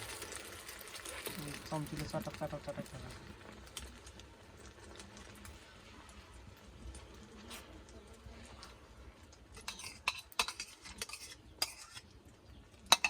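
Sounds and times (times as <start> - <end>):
metal spoon scraping frying pan: 9.5 - 12.1.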